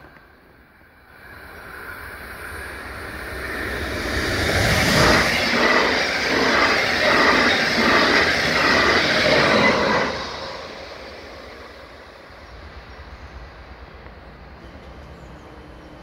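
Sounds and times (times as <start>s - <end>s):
passenger train passing: 0.0s - 16.0s.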